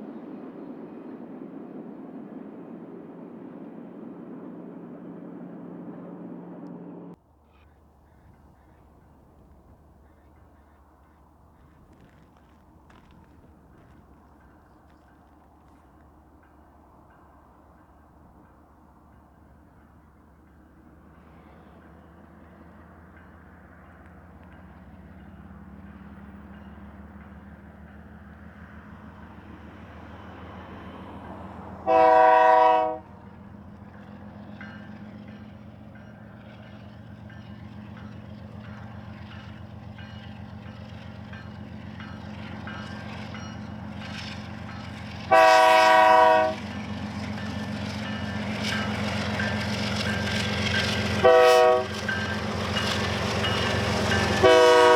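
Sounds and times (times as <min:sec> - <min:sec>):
diesel locomotive engine drone: 0:00.0 - 0:54.9
train air horn blasts: 0:31.8 - 0:33.3, 0:45.3 - 0:46.7, 0:51.1 - 0:52.1, 0:54.2 - 0:54.9
wheel and rail clatter: 0:46.6 - 0:54.5.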